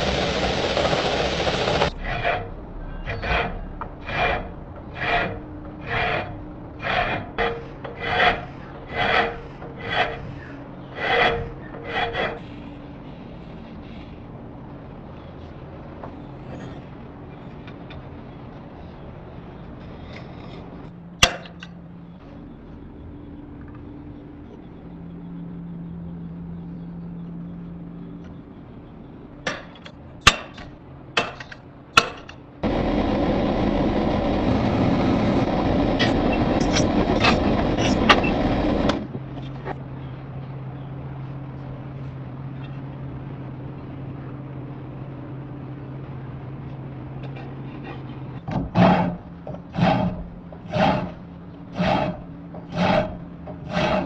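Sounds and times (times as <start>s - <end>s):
loud rushing noise with crackles: 0.0s - 7.8s, 32.6s - 39.5s
hammer striking steel: 21.2s - 21.8s, 29.4s - 32.4s.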